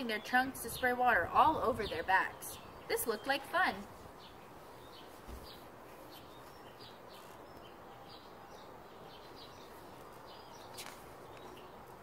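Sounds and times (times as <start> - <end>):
low background noise: 0.0 - 12.0
small birds chirping: 0.0 - 12.0.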